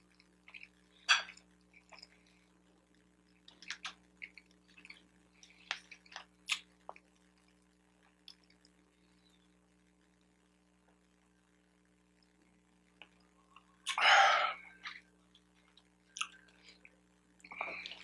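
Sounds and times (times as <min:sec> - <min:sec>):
close chewing mouth smacks: 0:03.3 - 0:08.8.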